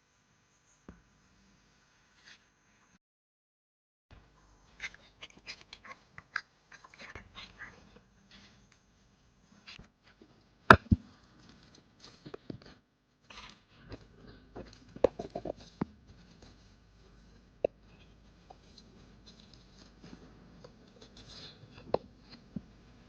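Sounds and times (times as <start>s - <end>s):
objects being handled: 9.6s - 22.7s.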